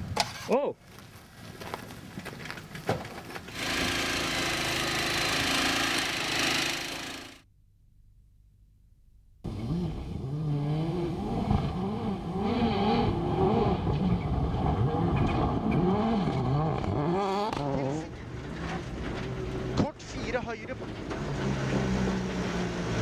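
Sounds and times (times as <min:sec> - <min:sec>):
rally car engine revving hard: 0:03.5 - 0:07.4, 0:09.5 - 0:19.8, 0:21.0 - 0:23.0.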